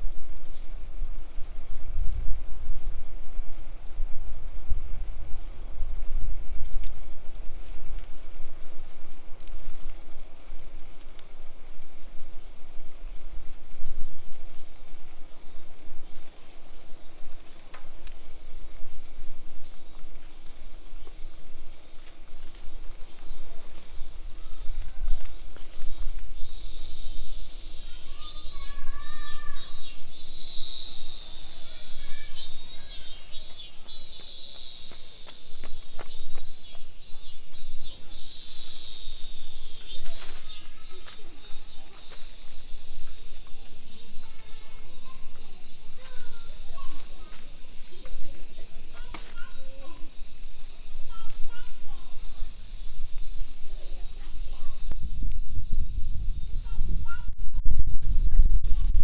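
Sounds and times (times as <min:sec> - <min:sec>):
insects buzzing: 0:00.0 - 0:59.0.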